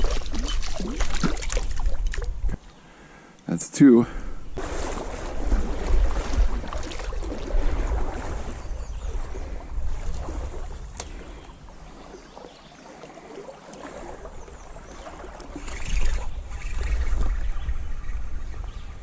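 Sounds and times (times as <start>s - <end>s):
stream water running: 0.0s - 19.0s
wind buffeting microphone: 4.4s - 12.6s, 13.9s - 19.0s.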